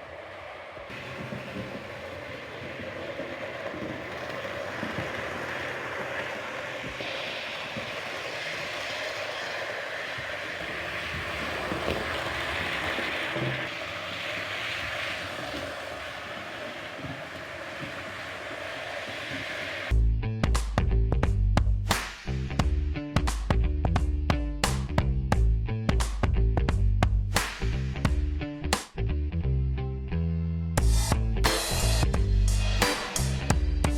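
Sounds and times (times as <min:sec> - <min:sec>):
model train whirring: 0:00.0 - 0:19.9.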